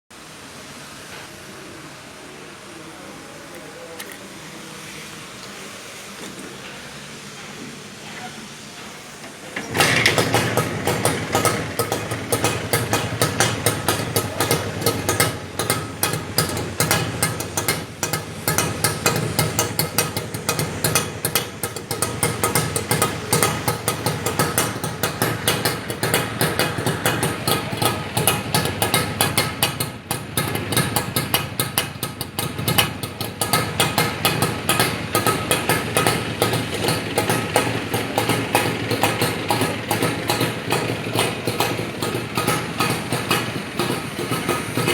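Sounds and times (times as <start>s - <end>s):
motorcycle engine idling: 9.6s - 44.9s.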